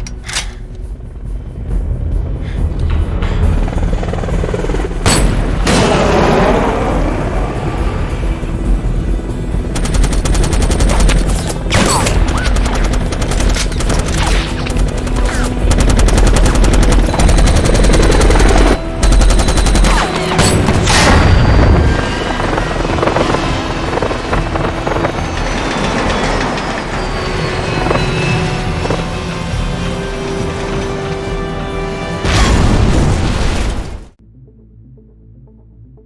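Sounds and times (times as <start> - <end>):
film score music: 0.0 - 36.0
automatic gunfire: 9.8 - 20.8.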